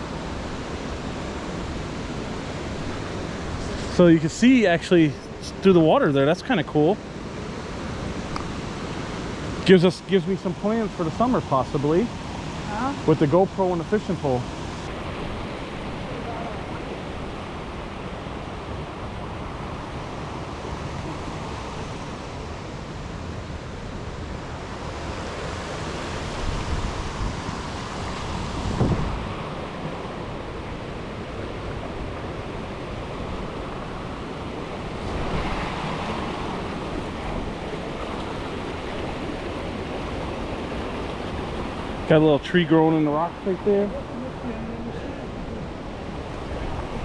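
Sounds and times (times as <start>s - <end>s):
river water over rapids: 0.0s - 47.0s
wind buffeting microphone: 14.4s - 42.2s.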